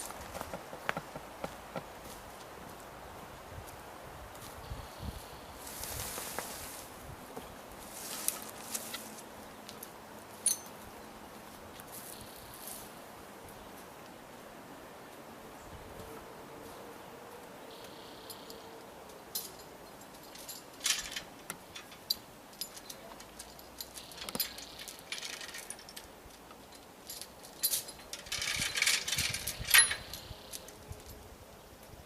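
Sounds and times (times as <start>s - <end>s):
metallic clinking and rattling: 10.4s - 10.8s, 19.3s - 31.2s.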